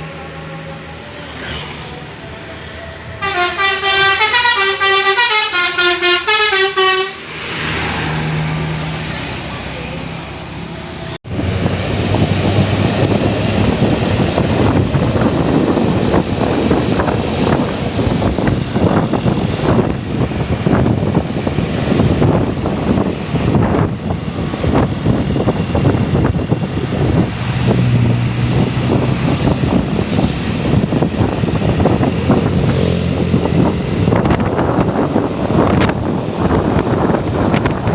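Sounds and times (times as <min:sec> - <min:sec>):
bus engine rumbling: 0:00.0 - 0:37.9
wind on microphone: 0:11.3 - 0:37.9.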